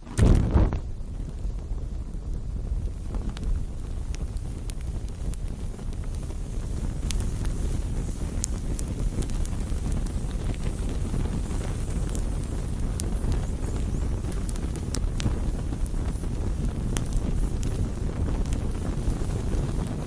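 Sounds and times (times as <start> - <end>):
low rumble: 0.0 - 1.2
burning wood crackling: 0.0 - 20.0.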